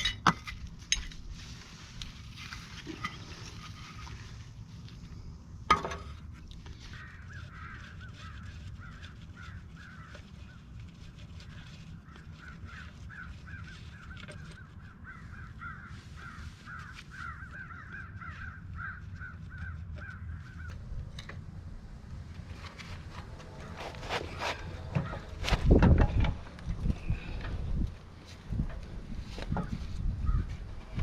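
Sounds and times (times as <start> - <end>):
bird harsh calls: 6.8 - 10.6, 11.4 - 20.8.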